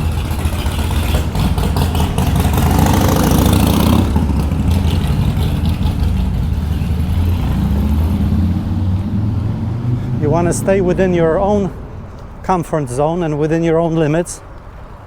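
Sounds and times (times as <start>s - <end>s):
motorcycle engine running: 0.0s - 11.7s.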